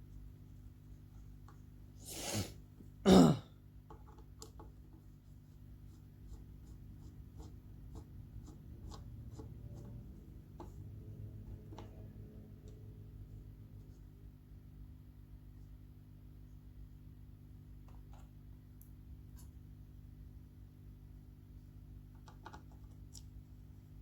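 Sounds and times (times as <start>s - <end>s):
person coughing: 2.1s - 3.6s.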